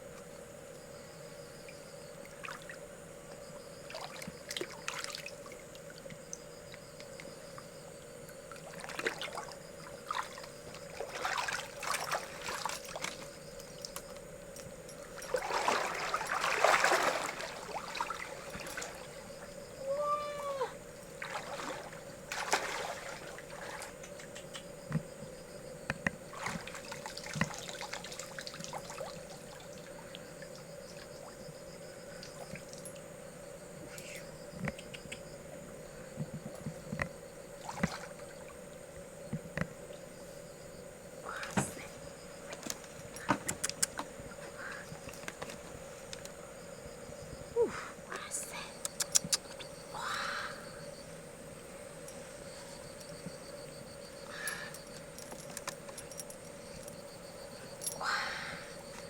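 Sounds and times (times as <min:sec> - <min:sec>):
river water splashing and trickling: 0:02.3 - 0:02.8, 0:03.9 - 0:06.1, 0:08.5 - 0:14.1, 0:14.9 - 0:19.6, 0:21.0 - 0:24.5, 0:26.3 - 0:31.4, 0:37.6 - 0:38.6.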